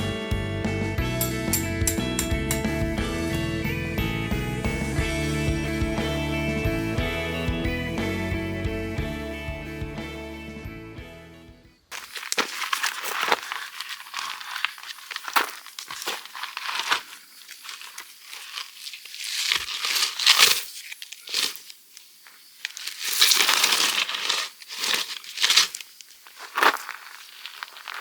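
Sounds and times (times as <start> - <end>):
crinkling and rustling: 11.9 - 28.0.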